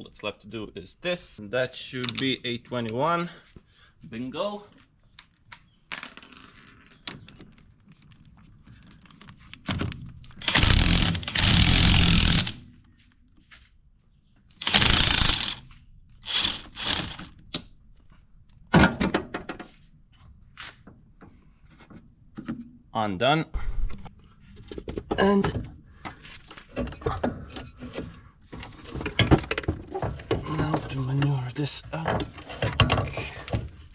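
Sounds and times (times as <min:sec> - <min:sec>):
impact wrench bursts: 0:10.4 - 0:12.6, 0:14.6 - 0:15.6, 0:16.2 - 0:17.3.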